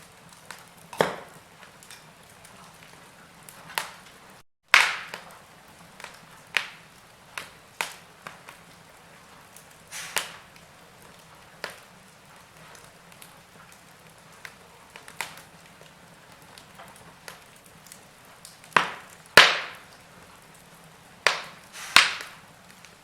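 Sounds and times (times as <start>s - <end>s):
faint steady hiss: 0.0s - 23.0s
wood fire crackling and popping: 0.0s - 23.0s.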